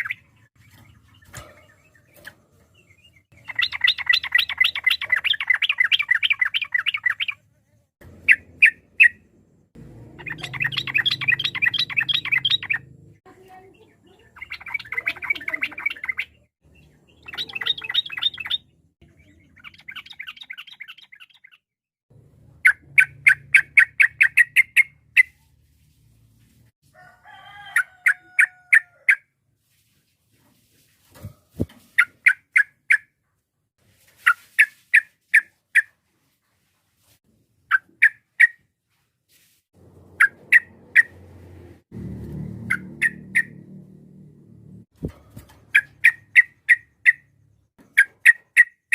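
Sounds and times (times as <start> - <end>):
bird chattering song: 0.0 - 9.4, 10.1 - 21.6, 22.6 - 25.4, 40.1 - 41.2, 42.6 - 43.7, 45.7 - 48.9.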